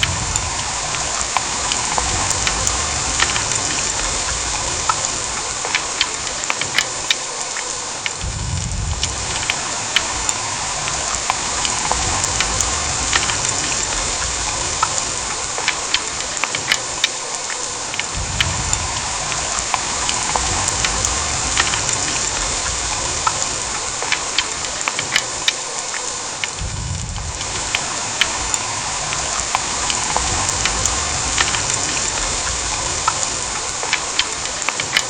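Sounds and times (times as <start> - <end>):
low rumble: 0.0 - 5.4, 8.2 - 15.3, 18.1 - 23.8, 26.6 - 33.6
heavy rain pouring: 0.0 - 35.0
raindrops ticking: 0.0 - 35.0.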